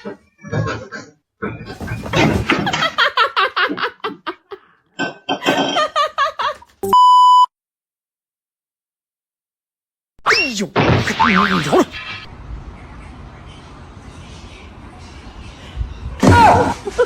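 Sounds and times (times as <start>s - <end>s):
electronic beep tone: 6.8s - 7.5s.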